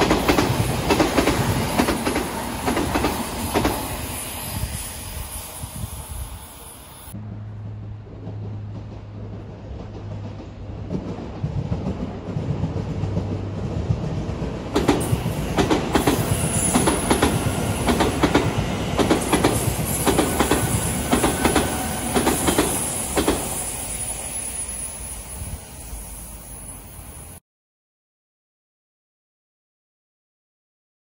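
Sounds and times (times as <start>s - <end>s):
wheels clacking over rail joints: 0.0s - 4.0s, 8.2s - 23.7s
train rumble: 0.0s - 27.4s.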